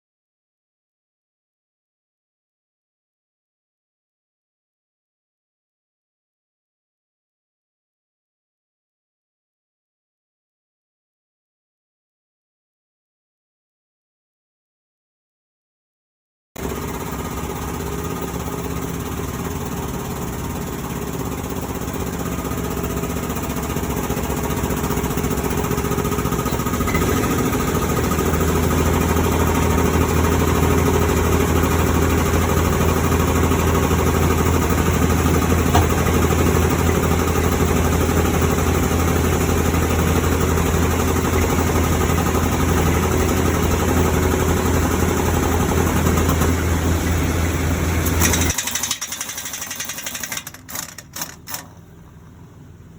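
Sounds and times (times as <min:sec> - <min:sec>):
heavy engine running: 0:16.6 - 0:52.9.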